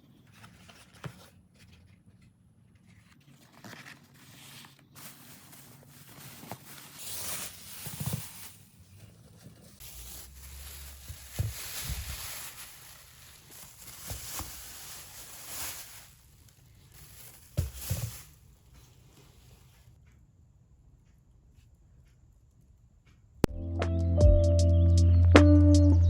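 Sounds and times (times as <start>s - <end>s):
rustling of bags and packaging: 0.0s - 20.0s
soft knocks of items set down: 17.4s - 18.3s.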